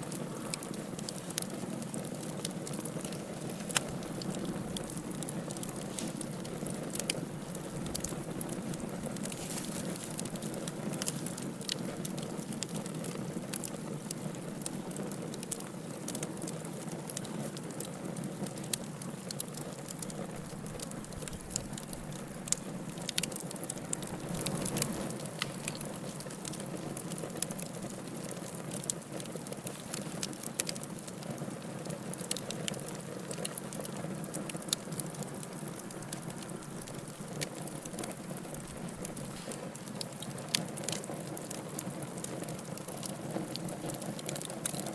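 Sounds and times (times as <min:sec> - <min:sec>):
wood fire crackling and popping: 0:00.0 - 0:44.9
low rush of flame: 0:20.0 - 0:28.5.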